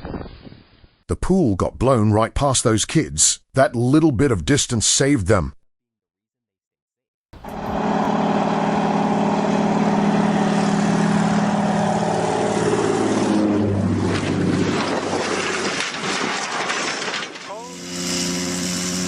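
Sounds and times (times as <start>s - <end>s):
helicopter engine and rotor drone: 7.4s - 14.8s.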